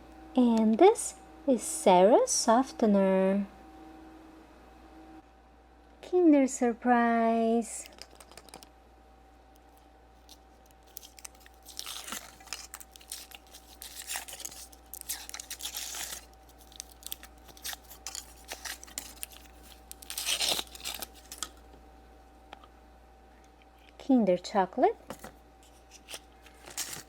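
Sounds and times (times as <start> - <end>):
foil wrapper crinkling: 7.9 - 8.7, 9.6 - 21.6, 25.6 - 27.0.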